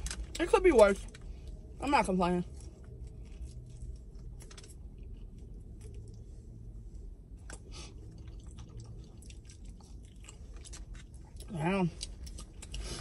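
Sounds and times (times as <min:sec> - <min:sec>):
low steady hum: 0:00.0 - 0:13.0
person chewing with mouth clicks: 0:07.4 - 0:13.0.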